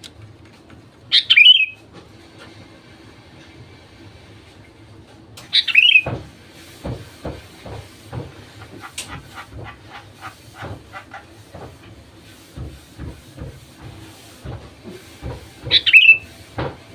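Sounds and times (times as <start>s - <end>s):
bird call: 1.1s - 1.8s, 5.6s - 6.1s, 15.8s - 16.3s.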